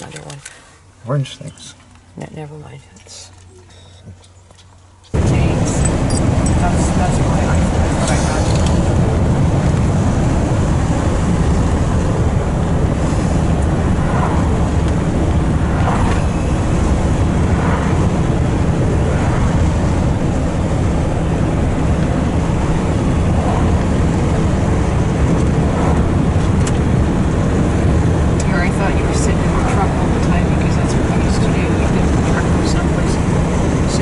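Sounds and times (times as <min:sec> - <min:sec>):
truck engine rumbling inside cab: 0:03.1 - 0:34.0.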